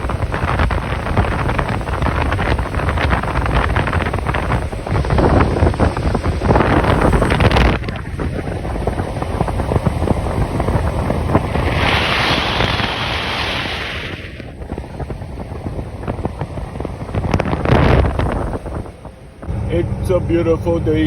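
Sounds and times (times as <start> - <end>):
truck road noise: 0.0 - 21.0
wind buffeting microphone: 0.0 - 21.0
hiss: 11.4 - 14.5.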